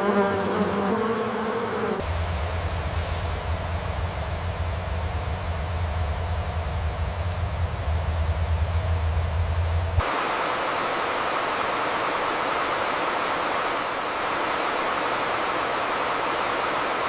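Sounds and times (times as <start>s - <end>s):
steady rushing hiss: 1.9s - 17.0s
low rumble: 2.0s - 10.0s.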